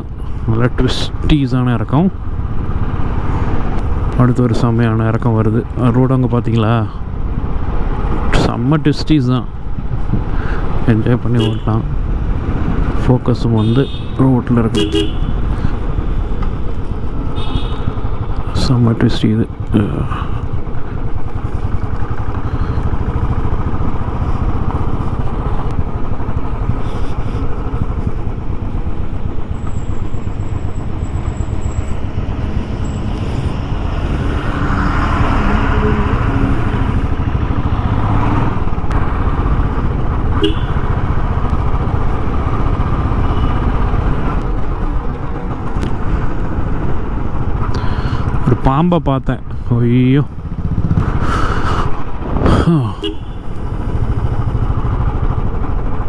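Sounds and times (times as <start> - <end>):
rough rushing noise: 12.4 - 43.5, 50.3 - 56.0
motorcycle engine braking: 12.5 - 48.4.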